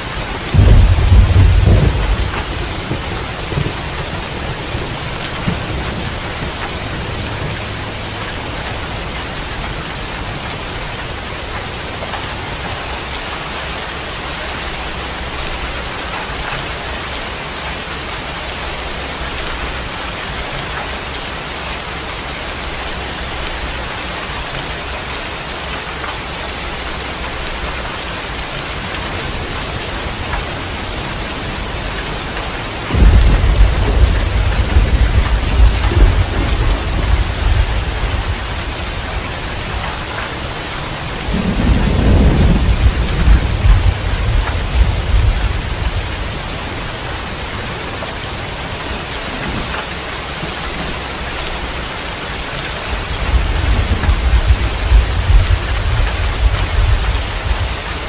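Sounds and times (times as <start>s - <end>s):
thunder rumbling: 0.0s - 13.3s, 26.8s - 58.0s
steady rain: 0.0s - 58.0s.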